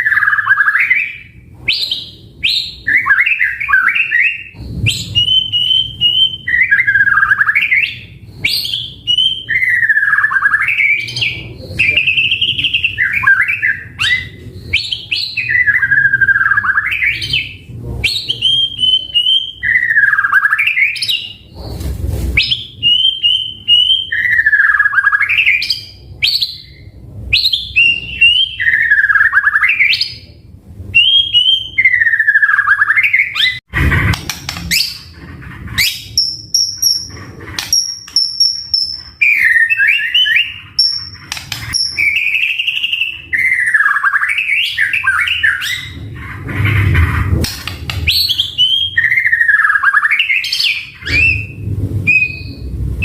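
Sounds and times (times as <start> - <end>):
bird singing whistled phrases: 0.0 - 21.4, 22.4 - 30.3, 30.9 - 33.6, 37.7 - 46.0, 48.0 - 52.7.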